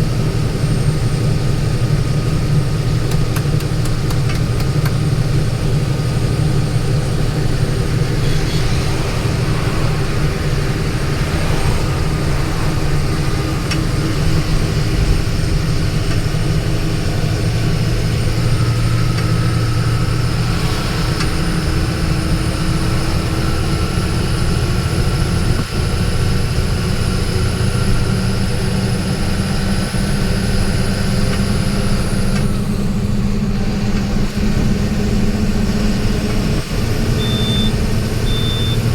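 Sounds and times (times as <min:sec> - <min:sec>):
vehicle engine and road noise: 0:00.0 - 0:38.9
thin high whine: 0:07.3 - 0:14.9.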